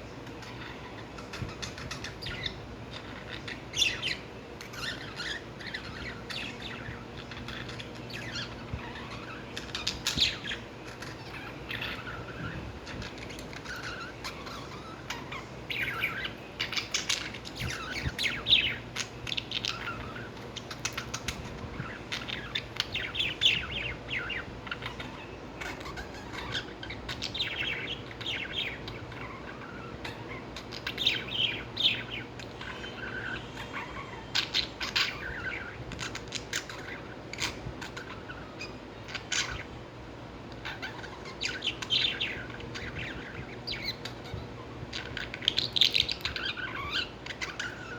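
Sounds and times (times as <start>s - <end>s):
lovebirds chirping: 0.0s - 47.9s.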